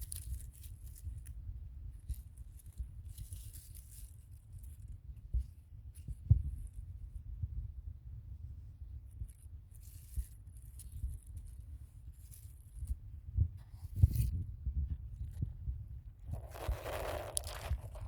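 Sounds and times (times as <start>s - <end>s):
light rustling and crackling: 9.1s - 15.5s, 16.2s - 18.0s.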